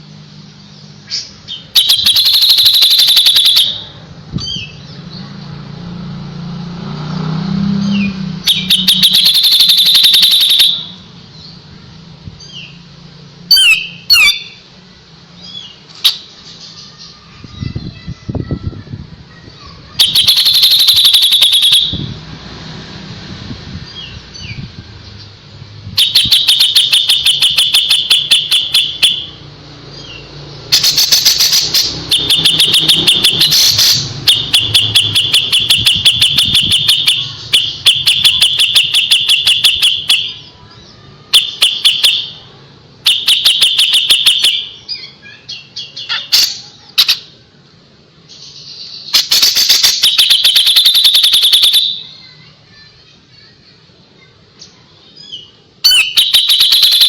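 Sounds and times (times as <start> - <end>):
songbird singing rapid repeated notes: 0.0 - 5.8, 7.5 - 18.4, 19.4 - 22.2, 23.7 - 52.4, 53.6 - 57.0.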